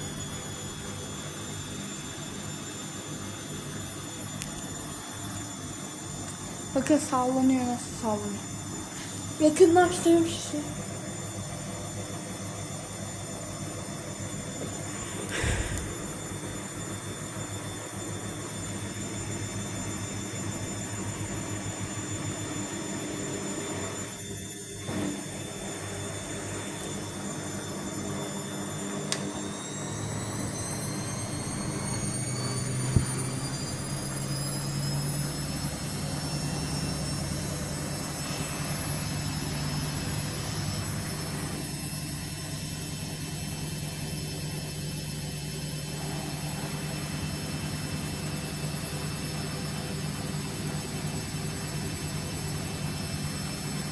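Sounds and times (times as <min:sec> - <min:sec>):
motor whine: 0:00.0 - 0:53.9
washing machine spinning: 0:00.0 - 0:53.9.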